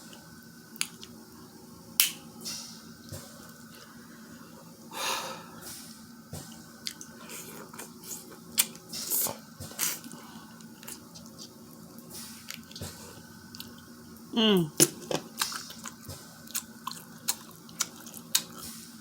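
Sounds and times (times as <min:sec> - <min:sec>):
wet squishing and chewing: 0:00.7 - 0:01.2, 0:06.4 - 0:14.0, 0:14.8 - 0:18.8.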